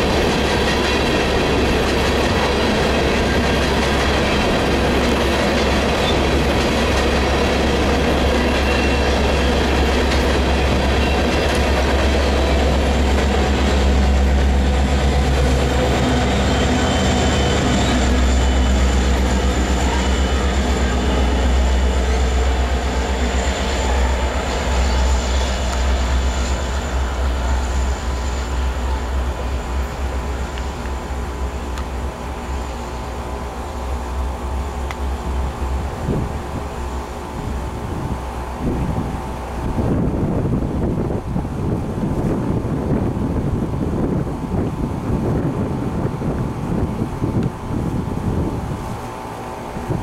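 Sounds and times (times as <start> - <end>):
train wheel clatter: 0.0 - 33.3
diesel locomotive engines running: 0.0 - 50.0
high wheel squeal: 0.4 - 29.9.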